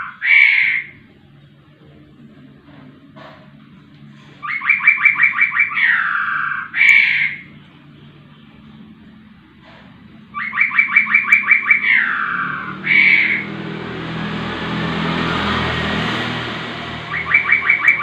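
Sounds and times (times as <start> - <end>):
long harsh noisy call: 0.0 - 1.1, 4.1 - 7.6, 10.2 - 18.0
bird calling: 0.0 - 1.2, 4.2 - 7.8, 10.2 - 13.7, 17.0 - 18.0.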